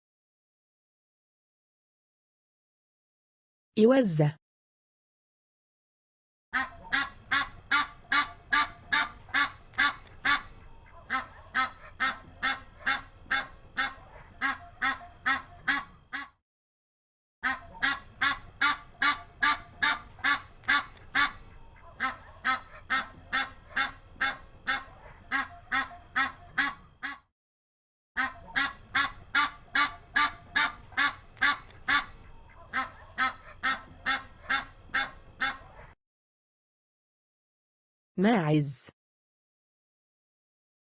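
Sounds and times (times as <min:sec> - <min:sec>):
geese honking: 0:06.6 - 0:16.3, 0:17.4 - 0:27.2, 0:28.2 - 0:35.9.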